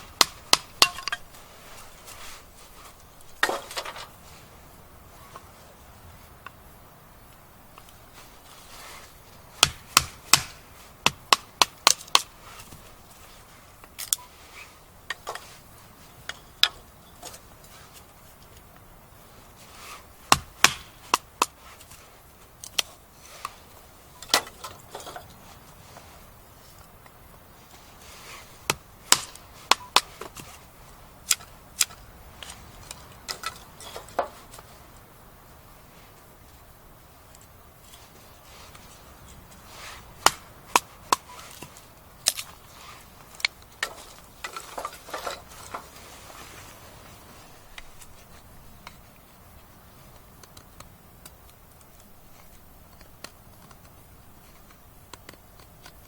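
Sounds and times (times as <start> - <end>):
wooden baton striking knife: 0.2 - 1.3.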